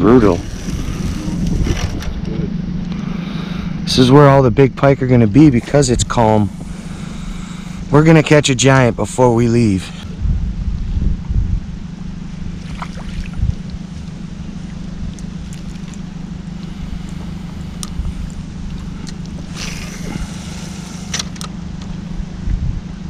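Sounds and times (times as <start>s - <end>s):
boat motor humming: 0.0s - 23.0s.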